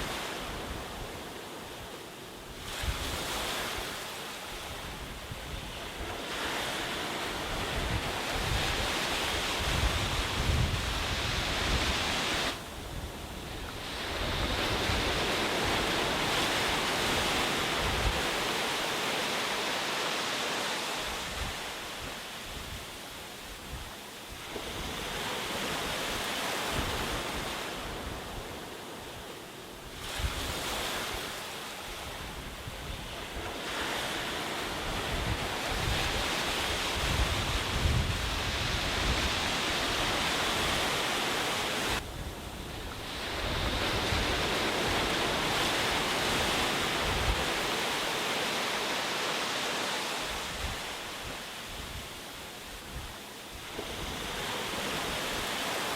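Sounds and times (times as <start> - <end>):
sea waves breaking on beach: 0.0 - 55.9
wind buffeting microphone: 4.6 - 18.6, 32.0 - 48.0.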